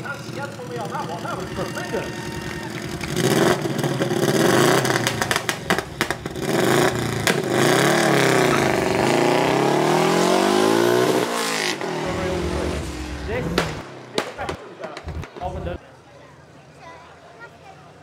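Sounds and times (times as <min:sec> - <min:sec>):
car engine accelerating hard: 0:02.9 - 0:13.9.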